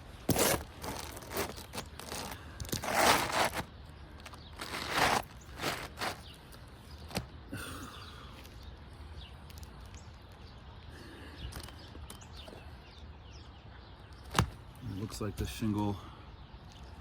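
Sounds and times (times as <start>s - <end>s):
roof shingles scraping and knocking: 0.3s - 6.3s.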